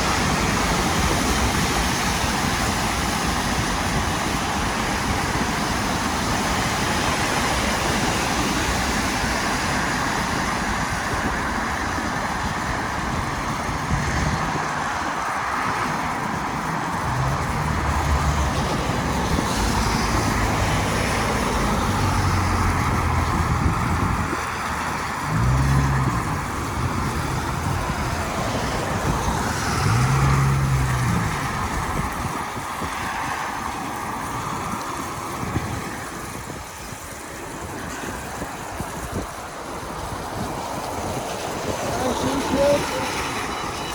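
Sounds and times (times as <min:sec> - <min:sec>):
traffic hiss on wet road: 0:00.0 - 0:43.9
wind noise: 0:00.0 - 0:43.9
vehicle engine humming: 0:15.9 - 0:32.7, 0:40.8 - 0:43.9.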